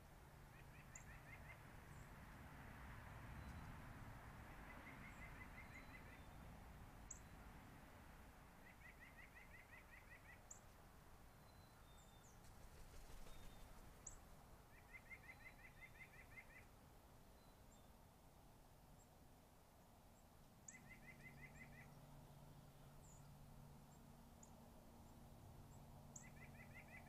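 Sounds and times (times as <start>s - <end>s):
small bird trill: 4.8s - 6.4s, 11.4s - 16.7s, 20.7s - 22.0s, 26.2s - 27.0s.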